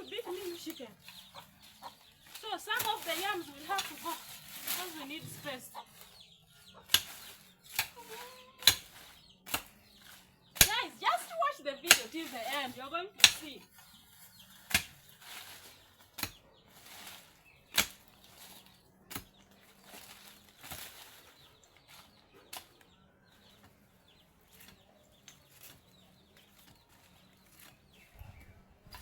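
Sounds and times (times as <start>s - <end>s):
hand tool striking: 0.2s - 11.3s, 11.9s - 13.8s, 14.6s - 21.1s
swishing and rustling: 1.6s - 6.2s.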